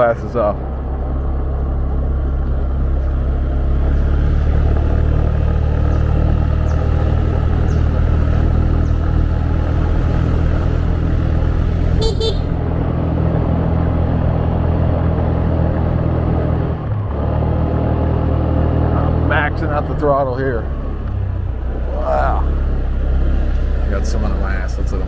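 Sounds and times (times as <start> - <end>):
wind and road noise: 0.0 - 25.0
motorbike engine running: 0.6 - 25.0
horn beeps: 12.0 - 12.6.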